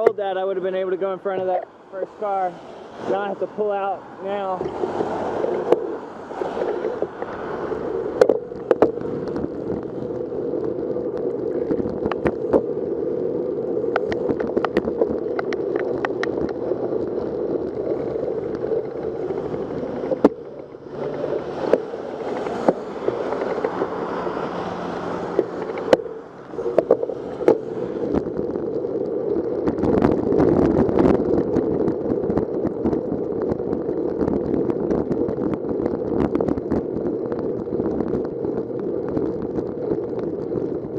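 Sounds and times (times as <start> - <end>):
wind and bicycle road noise: 0.0 - 40.9
sharp clicks and rattles: 13.8 - 24.2.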